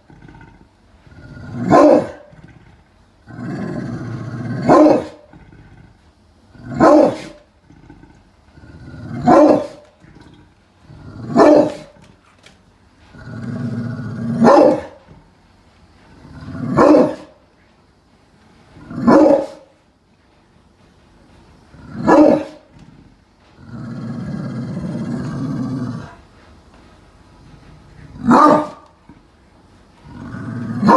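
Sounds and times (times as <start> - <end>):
dog growling: 0.0 - 17.4, 21.6 - 26.4, 27.4 - 30.9
dog barking: 1.7 - 2.3, 4.6 - 5.2, 6.8 - 7.4, 9.2 - 9.8, 11.4 - 11.9, 14.4 - 15.0, 16.7 - 17.3, 19.0 - 19.7, 22.0 - 22.6, 28.2 - 28.8.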